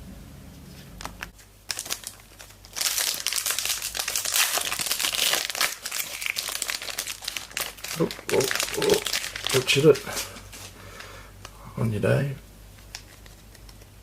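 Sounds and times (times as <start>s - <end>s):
wrapper crinkling: 1.0s - 10.8s.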